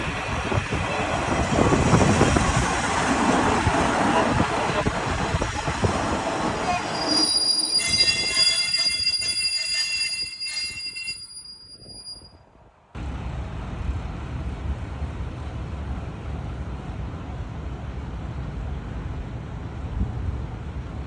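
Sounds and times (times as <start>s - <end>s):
railcar wheels squealing: 6.7s - 12.4s.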